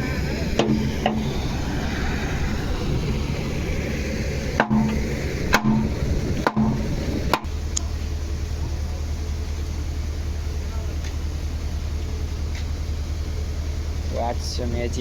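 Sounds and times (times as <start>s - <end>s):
wheels clacking on rail joints: 0.0s - 1.6s
train rumble: 0.0s - 15.0s.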